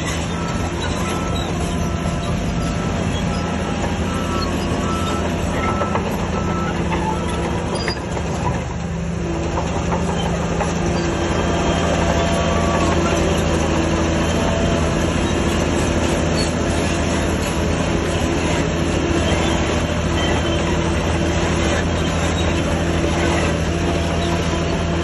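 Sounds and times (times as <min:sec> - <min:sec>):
bulldozer diesel engine running: 0:00.0 - 0:25.0
metallic clatter of steel tracks: 0:00.0 - 0:25.0.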